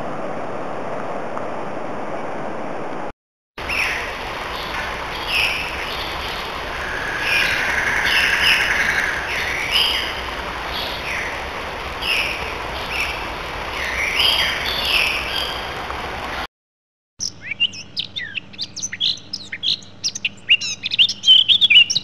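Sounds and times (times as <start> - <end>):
songbirds singing: 3.6 - 16.2, 17.2 - 22.0
background hiss: 3.6 - 16.4.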